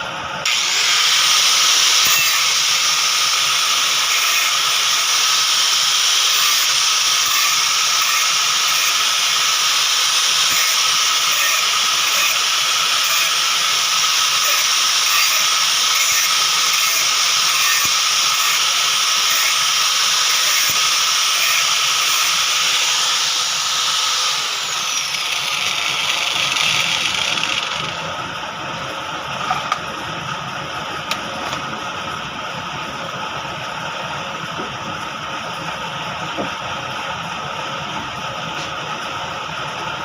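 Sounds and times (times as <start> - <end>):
power tool whirring: 0.0 - 28.4.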